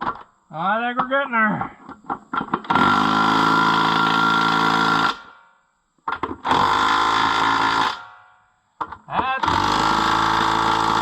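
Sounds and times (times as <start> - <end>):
power tool motor whining: 2.7 - 5.2, 6.4 - 8.0, 9.4 - 11.0.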